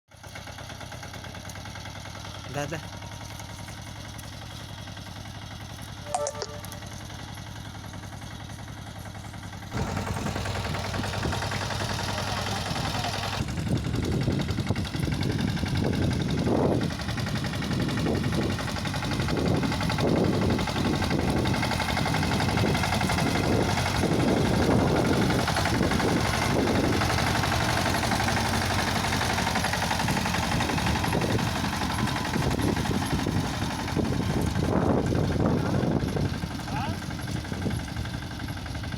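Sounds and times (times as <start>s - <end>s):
tractor diesel engine running: 0.1s - 38.9s.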